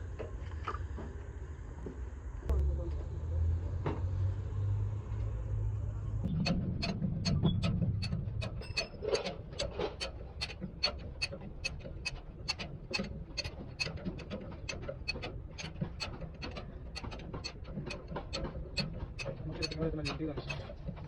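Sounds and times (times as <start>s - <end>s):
rhythmic mechanical clicking: 6.2s - 21.0s.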